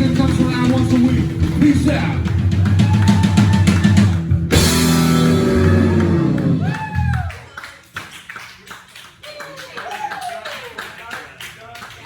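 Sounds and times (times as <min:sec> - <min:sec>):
rock band final chord: 0:00.0 - 0:07.3
crowd shouting: 0:02.6 - 0:04.2, 0:05.2 - 0:07.3.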